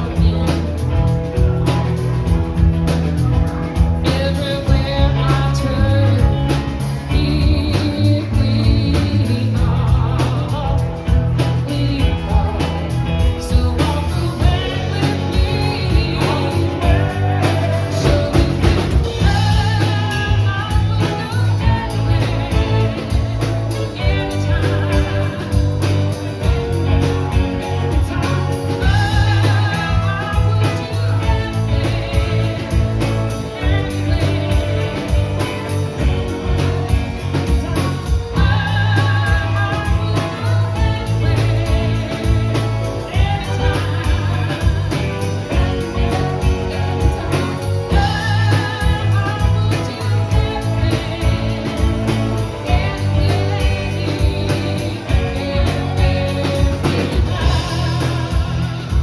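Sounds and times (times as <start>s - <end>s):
bass line: 0.0s - 59.0s
electric guitar: 0.0s - 59.0s
person singing: 0.0s - 59.0s.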